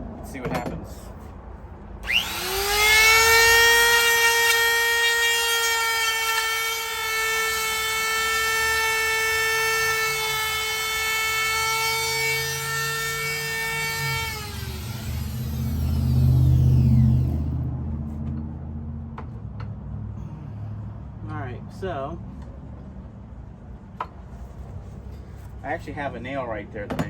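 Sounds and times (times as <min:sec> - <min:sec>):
wood router whining: 0:02.0 - 0:17.6.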